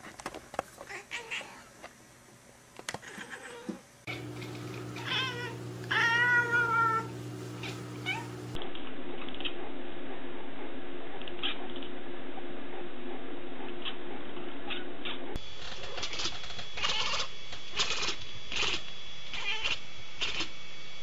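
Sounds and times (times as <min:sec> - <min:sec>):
steady hum: 0:04.0 - 0:21.0
cat meowing: 0:05.0 - 0:08.4, 0:19.3 - 0:19.8.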